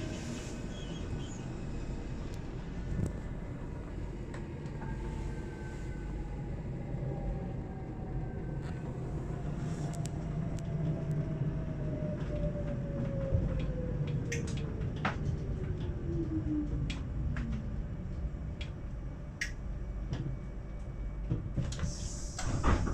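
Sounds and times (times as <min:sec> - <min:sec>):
train carriage rumble: 0:00.0 - 0:22.9.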